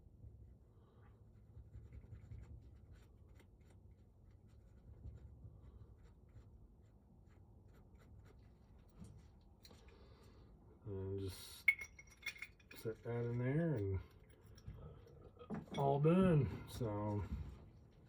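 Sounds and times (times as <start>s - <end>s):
clicks and scraping of lock parts: 11.7s - 15.9s.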